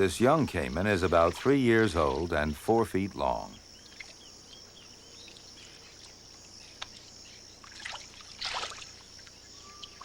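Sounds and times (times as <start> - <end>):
high insect hiss: 0.0 - 10.0
faint bird chirps: 0.1 - 10.0
water splash: 7.6 - 9.3.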